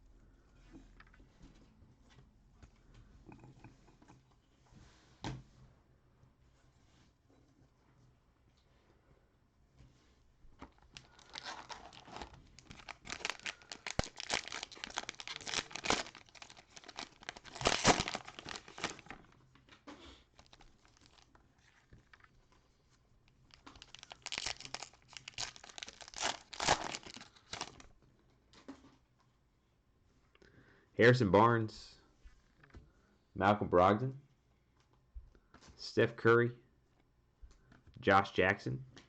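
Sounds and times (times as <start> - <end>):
cellophane wrapper crinkling: 10.7 - 19.4, 20.3 - 22.3, 23.3 - 28.0.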